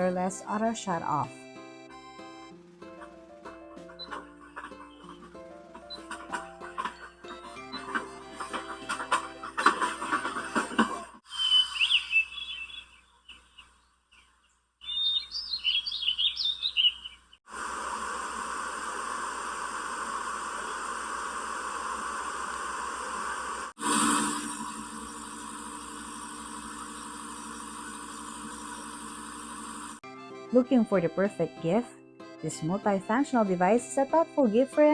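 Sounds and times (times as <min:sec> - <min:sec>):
recorded birdsong chirping: 0:11.2 - 0:17.4.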